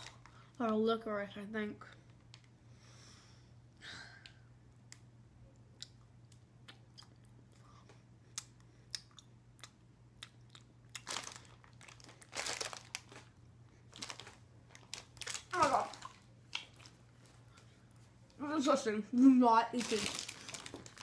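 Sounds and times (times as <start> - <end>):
person chewing candy: 5.6 - 17.1
wet mouth clicks: 5.8 - 11.0.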